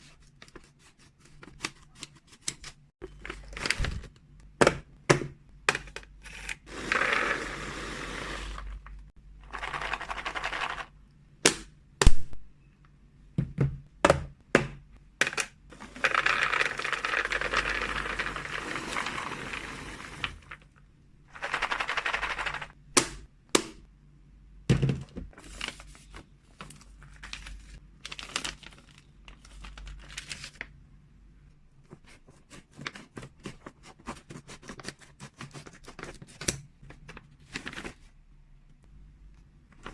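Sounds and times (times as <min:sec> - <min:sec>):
packaging rattling rustle: 0:15.7 - 0:20.7, 0:25.3 - 0:30.6.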